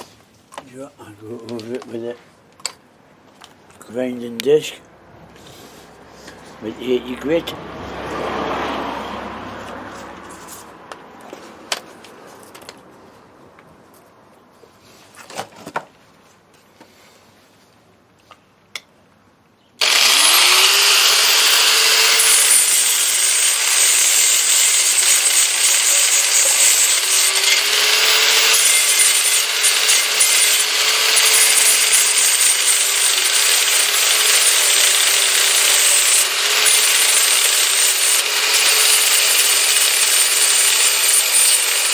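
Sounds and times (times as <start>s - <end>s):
angle grinder sanding metal: 19.8s - 41.9s.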